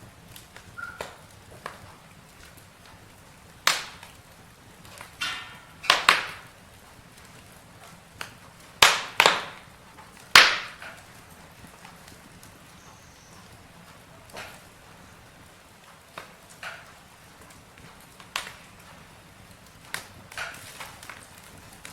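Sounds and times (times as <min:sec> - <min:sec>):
campfire wood crackling: 0:00.0 - 0:21.9
faint steady hiss: 0:00.0 - 0:21.9.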